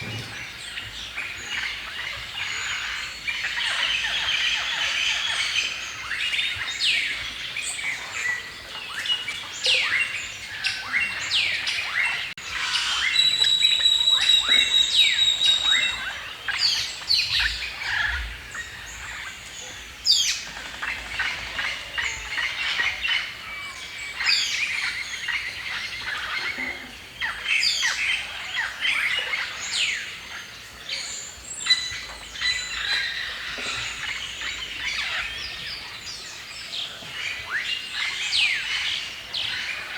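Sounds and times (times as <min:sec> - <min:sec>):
songbirds chirping and singing: 0:00.0 - 0:39.9
bird high steady whistle: 0:12.9 - 0:16.0.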